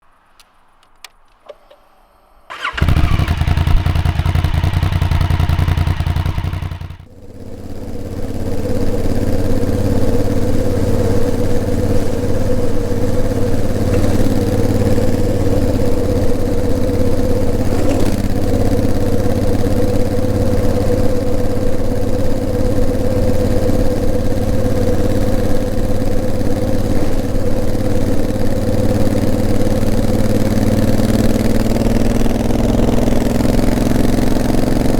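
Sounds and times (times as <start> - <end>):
motorcycle engine starting and running: 2.5 - 34.9.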